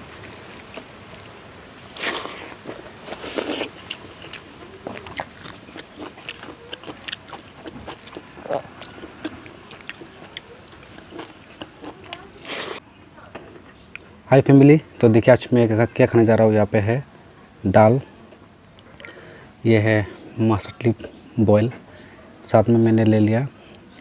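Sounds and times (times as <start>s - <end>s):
crunching and chewing: 0.0s - 14.1s, 18.3s - 19.4s.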